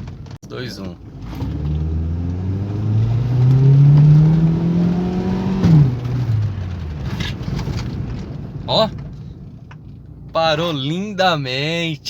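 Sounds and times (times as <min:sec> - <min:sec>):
car braking hard: 0:00.8 - 0:09.6
car engine revving: 0:00.9 - 0:08.6.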